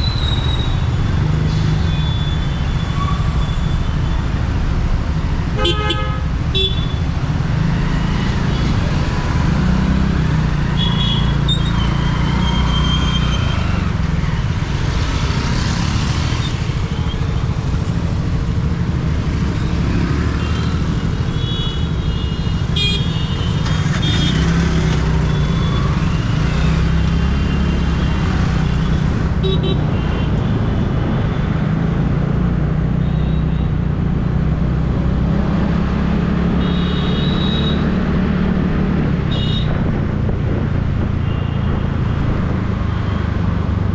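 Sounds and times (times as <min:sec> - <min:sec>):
scooter engine and road rumble: 0:00.0 - 0:43.9
vehicle horns tooting: 0:05.6 - 0:07.0, 0:10.7 - 0:11.7, 0:36.6 - 0:37.9, 0:39.3 - 0:39.8.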